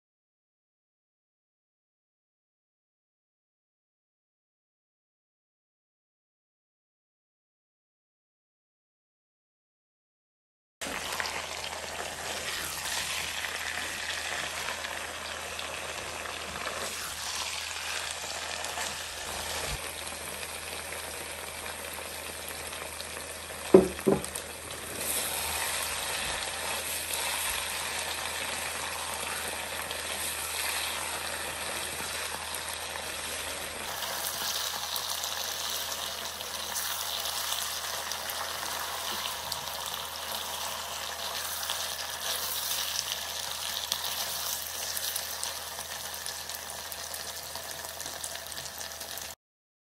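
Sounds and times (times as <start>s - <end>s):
food sizzling in a frying pan: 10.8s - 49.4s
wooden spatula stirring: 12.0s - 19.8s, 24.9s - 32.5s
sharp knocks: 23.8s - 24.3s.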